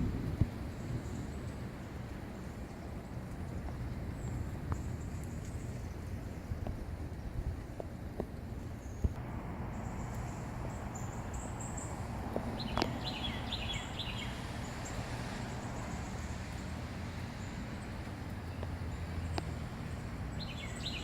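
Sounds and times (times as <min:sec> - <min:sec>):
gusty wind on microphone: 0:00.0 - 0:18.1
bird chirping: 0:09.7 - 0:16.4, 0:20.3 - 0:21.0.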